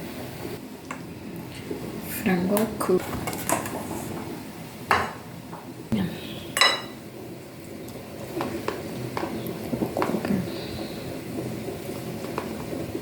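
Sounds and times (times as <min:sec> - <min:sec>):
dishes and utensils clattering: 0:06.6 - 0:07.0.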